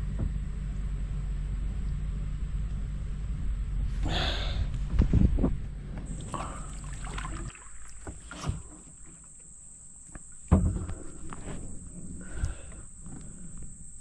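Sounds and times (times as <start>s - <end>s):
paddle knocking against hull: 5.4s - 9.2s, 10.2s - 11.5s
paddle splashing: 6.1s - 14.0s.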